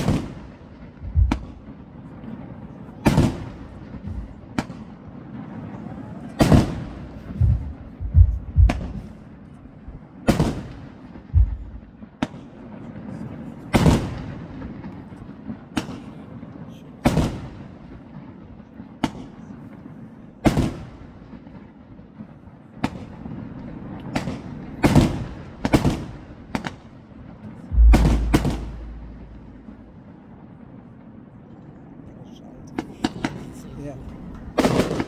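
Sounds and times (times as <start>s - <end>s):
fireworks bangs with rumbling: 0.0s - 2.2s, 3.0s - 5.6s, 6.4s - 13.0s, 13.8s - 16.1s, 17.0s - 19.4s, 20.4s - 26.9s, 27.7s - 31.0s, 34.4s - 35.0s.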